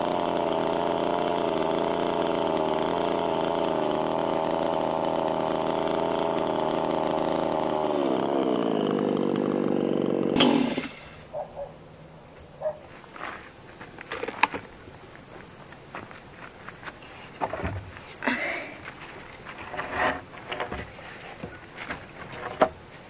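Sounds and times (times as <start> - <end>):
small engine running: 0.0 - 11.2.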